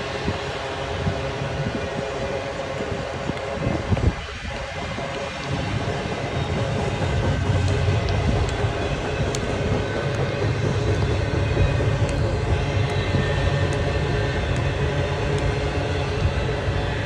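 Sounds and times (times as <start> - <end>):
freight train rumbling on rails: 0.0 - 17.0
faint clicks: 6.5 - 14.7.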